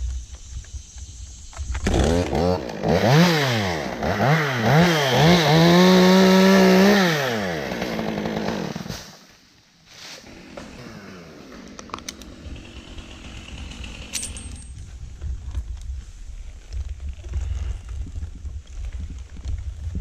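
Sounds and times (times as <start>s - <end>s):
chainsaw revving: 1.8s - 9.2s, 10.2s - 14.6s.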